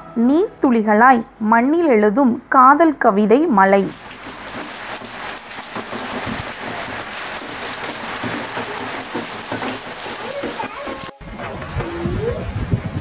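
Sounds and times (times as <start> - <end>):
rain on pavement: 3.8 - 11.1.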